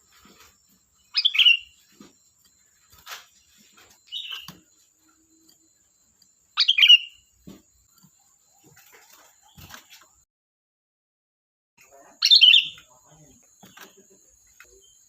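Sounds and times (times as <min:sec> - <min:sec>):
soft bird call: 0:00.2 - 0:05.7, 0:06.6 - 0:07.3.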